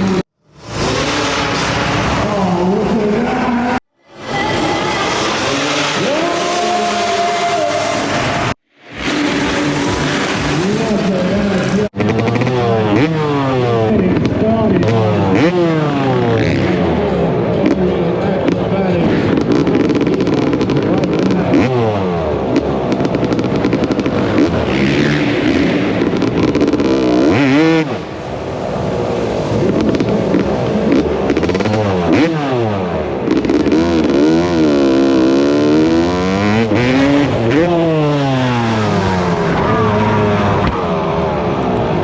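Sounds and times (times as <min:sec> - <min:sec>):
motocross bike engines revving: 0:00.0 - 0:42.0.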